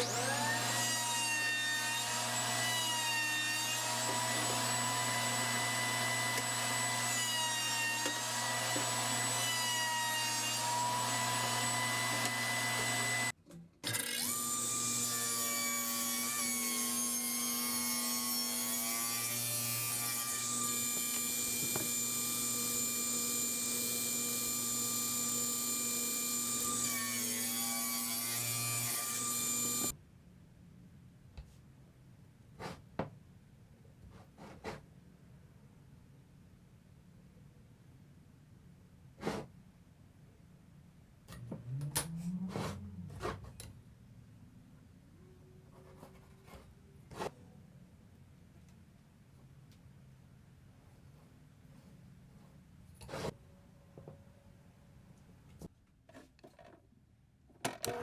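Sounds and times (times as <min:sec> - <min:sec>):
scroll saw cutting wood: 0:00.0 - 0:29.9, 0:41.3 - 0:43.5, 0:53.0 - 0:53.4.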